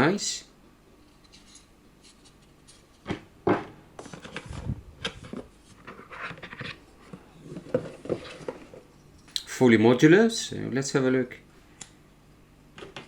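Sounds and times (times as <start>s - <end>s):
packaging rustling and scraping: 4.0s - 8.9s.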